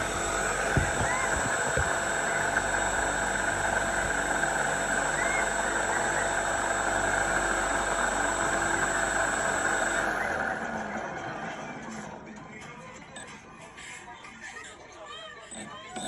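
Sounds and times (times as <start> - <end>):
model airplane motor whining: 0.0 - 11.1.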